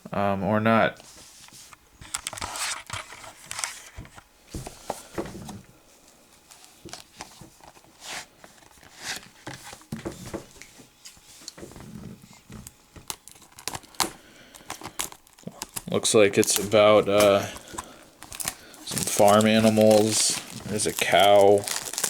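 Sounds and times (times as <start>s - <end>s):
plastic shrink wrap tearing: 13.1s - 22.0s.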